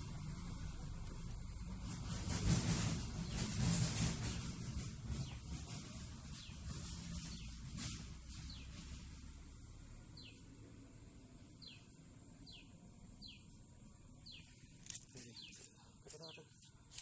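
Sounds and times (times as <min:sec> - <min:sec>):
broad rustling noise: 0:00.8 - 0:09.8
small bird chirping: 0:09.5 - 0:10.5, 0:11.2 - 0:17.0.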